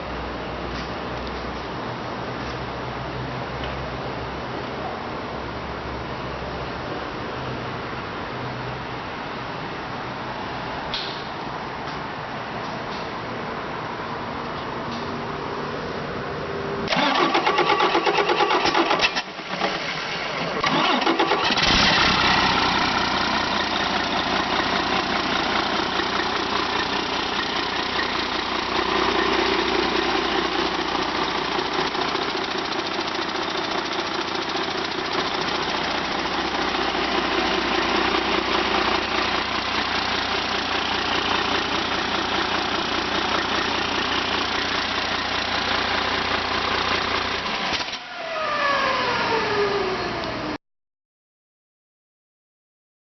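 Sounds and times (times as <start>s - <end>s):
diesel engine cranking: 16.9s - 50.5s
diesel engine idling: 16.9s - 50.6s.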